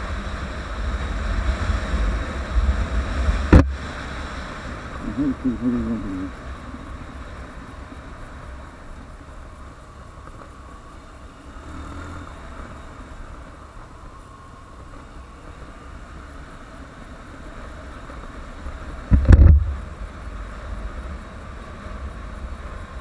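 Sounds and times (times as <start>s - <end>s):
wind noise on microphone: 0.0s - 5.5s, 18.9s - 23.0s
motorcycle engine running: 0.0s - 23.0s
loud low thump: 3.5s - 3.8s, 19.1s - 19.8s.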